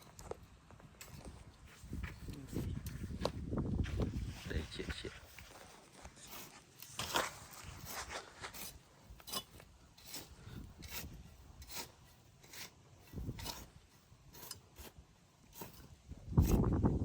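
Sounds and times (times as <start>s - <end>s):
short scraping strokes: 5.2s - 16.8s.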